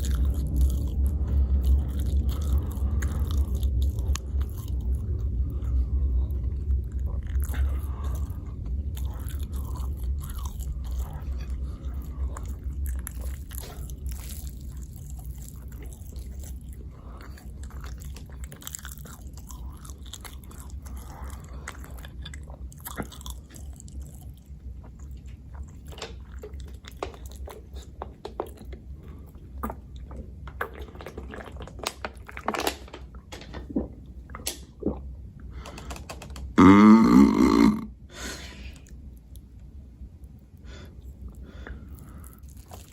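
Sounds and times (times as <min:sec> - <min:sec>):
low hum: 0:00.0 - 0:32.4
chewing and biting food: 0:00.0 - 0:33.8, 0:41.0 - 0:42.9
pitched throat sound: 0:36.6 - 0:38.0.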